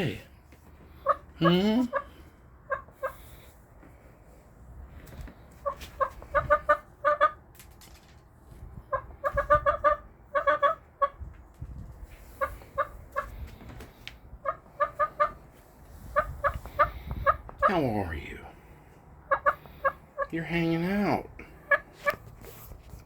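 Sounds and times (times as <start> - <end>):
hen clucking: 0.0 - 4.0, 5.0 - 7.5, 8.7 - 11.4, 12.0 - 22.4.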